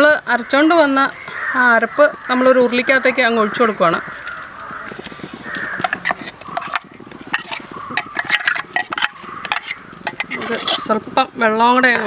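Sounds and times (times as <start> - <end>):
utensil tapping vessels: 4.0 - 11.2.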